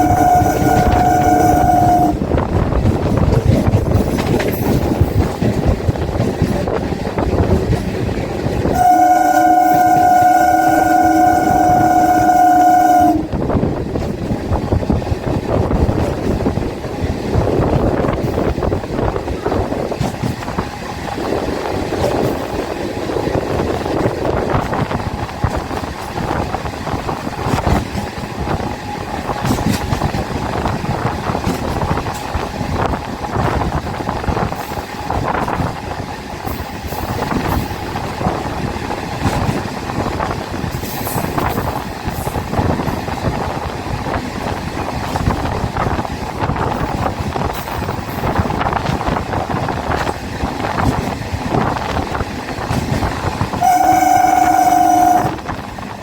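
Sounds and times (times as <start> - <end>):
train wheels rumbling on rails: 0.0 - 56.0
rattles and clanks: 2.4 - 8.6.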